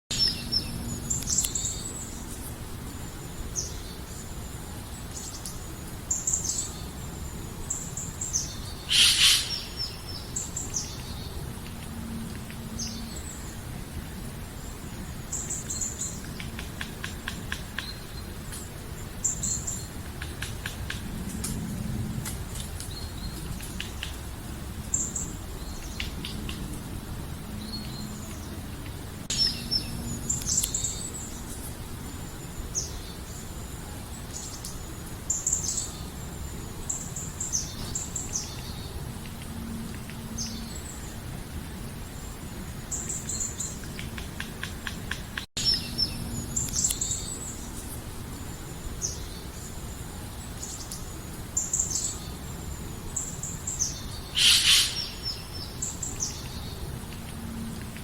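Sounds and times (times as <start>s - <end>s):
birds chirping: 7.6s - 11.5s, 50.4s - 57.0s.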